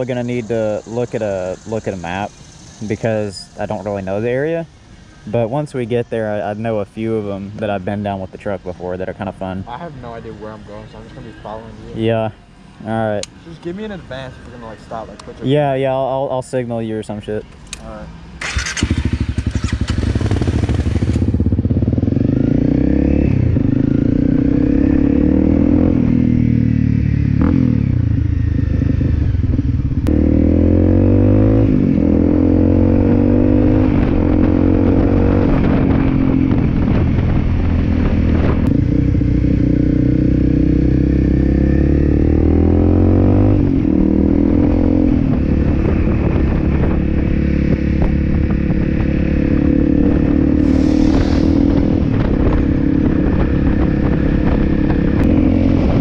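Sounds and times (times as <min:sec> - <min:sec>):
motorcycle engine accelerating: 0:17.8 - 0:56.0.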